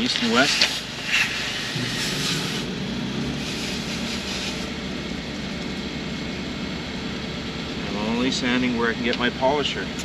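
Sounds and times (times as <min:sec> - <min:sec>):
steady low rumble: 0:01.4 - 0:10.0
sandpaper scrubbing plastic: 0:03.4 - 0:04.8.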